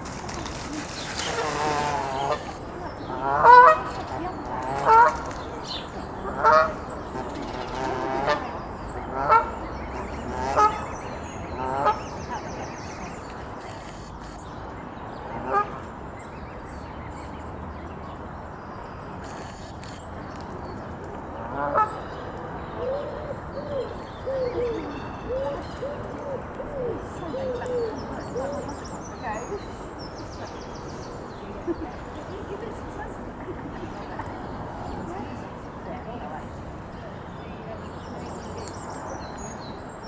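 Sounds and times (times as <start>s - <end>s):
goose honking: 0.1s - 5.5s, 6.2s - 11.0s, 21.4s - 22.1s.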